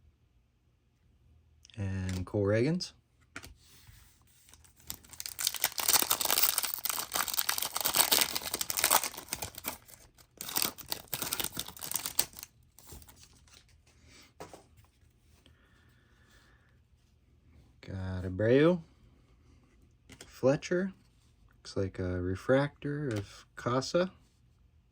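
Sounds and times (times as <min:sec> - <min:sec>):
faint handling sounds: 0:03.2 - 0:17.8
card pack wrapper tearing and crinkling: 0:04.4 - 0:13.7.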